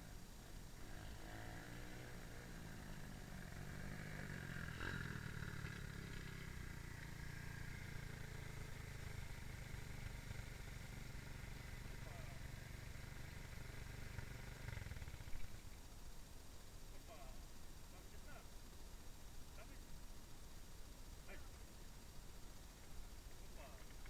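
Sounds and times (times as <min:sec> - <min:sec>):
dirt bike engine running: 0:00.0 - 0:15.9.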